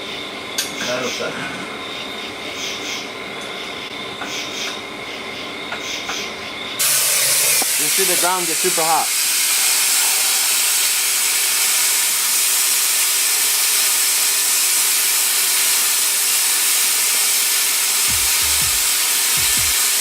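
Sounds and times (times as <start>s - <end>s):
plasma cutter hissing: 6.8s - 20.0s.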